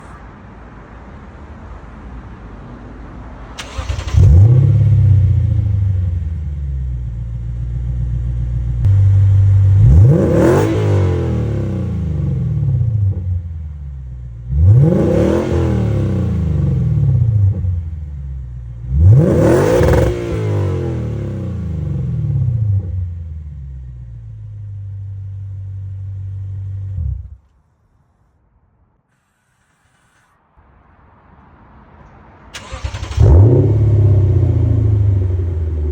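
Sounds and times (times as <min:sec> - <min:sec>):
car engine idling and revving: 0:03.6 - 0:27.5, 0:32.5 - 0:35.9.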